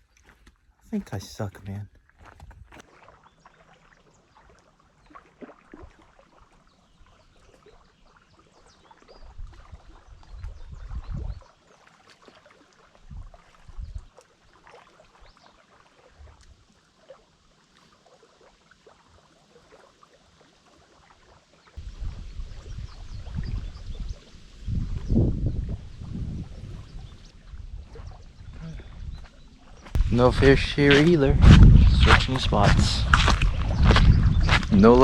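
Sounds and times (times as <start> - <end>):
water lapping: 0.0 - 35.0
wind rumble on microphone: 9.1 - 11.5, 13.0 - 14.1, 21.8 - 35.0.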